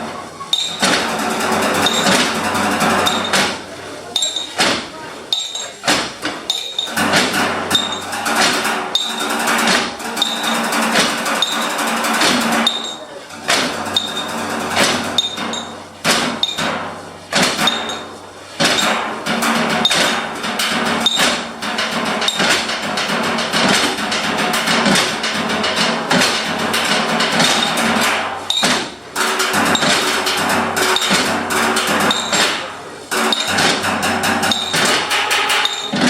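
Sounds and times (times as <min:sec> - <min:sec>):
percussion of hammers and tools: 0:00.0 - 0:36.0
high metallic ping: 0:00.5 - 0:01.0, 0:05.3 - 0:05.8.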